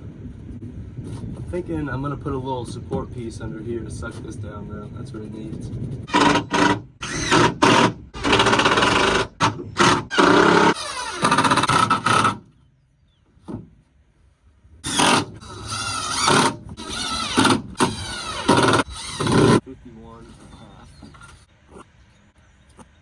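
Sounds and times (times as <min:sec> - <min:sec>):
power tool motor bursts: 0:06.1 - 0:12.4, 0:14.8 - 0:19.6.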